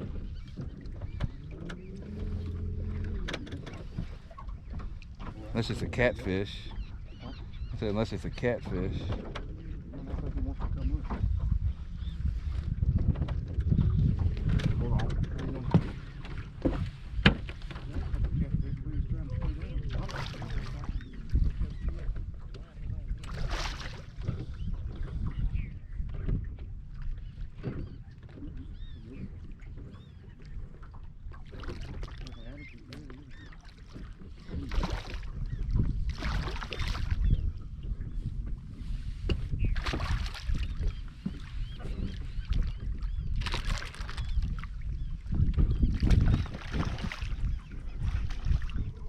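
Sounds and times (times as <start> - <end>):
wind rumble: 0.0 - 27.3, 34.0 - 49.0
water lapping: 0.0 - 49.0
water splash: 39.8 - 40.6, 43.4 - 44.3.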